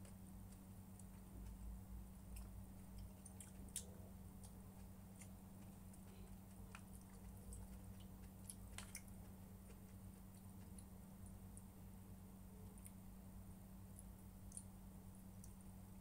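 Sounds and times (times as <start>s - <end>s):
steady low hum: 0.0s - 16.0s
person chewing: 2.3s - 11.7s.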